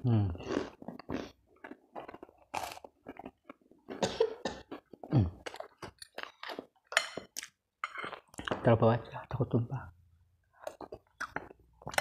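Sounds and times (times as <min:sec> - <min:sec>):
chewing with wet mouth clicks: 0:10.6 - 0:12.0.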